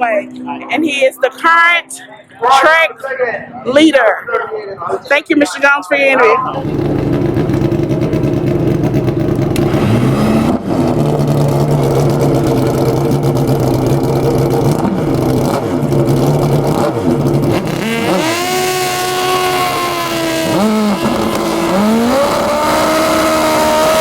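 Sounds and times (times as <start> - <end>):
motorcycle engine revving: 6.5 - 24.0.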